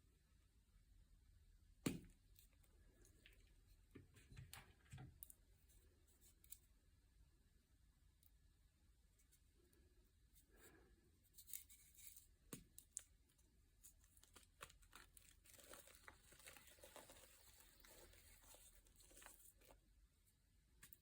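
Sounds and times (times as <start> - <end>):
crinkling and tearing: 13.8 - 19.8.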